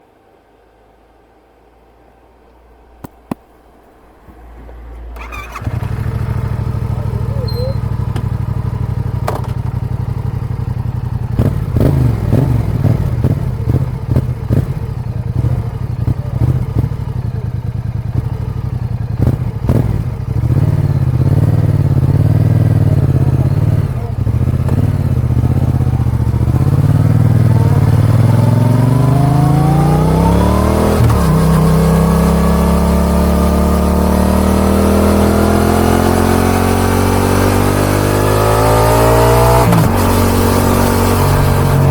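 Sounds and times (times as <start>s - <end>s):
motorcycle engine accelerating: 4.2s - 41.9s
engine clicks: 4.3s - 6.0s, 7.2s - 8.5s, 9.1s - 9.8s.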